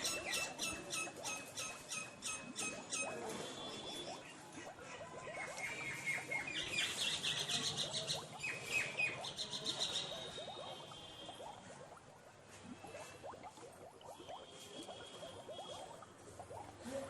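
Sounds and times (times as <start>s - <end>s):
small birds chirping: 0.0s - 11.4s.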